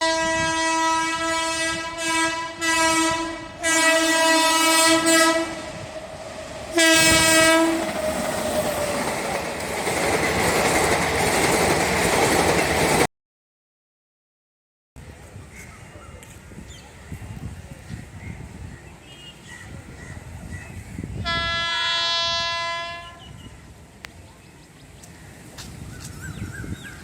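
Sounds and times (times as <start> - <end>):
train horn blasts: 0.0 - 9.0, 21.2 - 23.4
train passing with wheel clatter: 0.0 - 13.1, 19.6 - 27.0.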